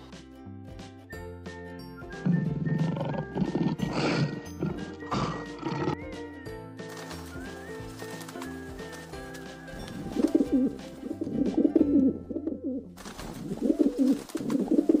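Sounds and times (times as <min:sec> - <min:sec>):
background music: 0:00.0 - 0:15.0
pigeons cooing: 0:02.1 - 0:06.1, 0:07.1 - 0:15.0.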